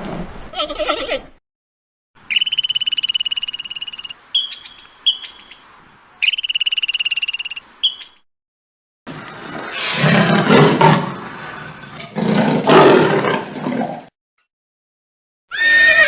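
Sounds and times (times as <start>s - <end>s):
frog chirps: 2.2s - 8.2s
frog trilling: 2.3s - 5.6s, 6.2s - 8.1s.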